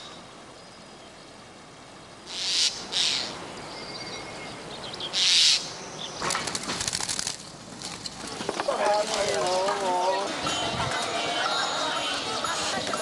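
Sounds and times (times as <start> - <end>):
bird wingbeats: 6.2 - 11.0.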